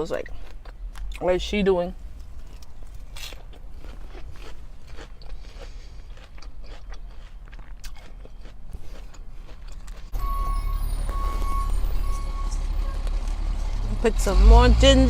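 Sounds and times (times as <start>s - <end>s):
person chewing salad: 0.1s - 1.2s, 2.1s - 10.2s.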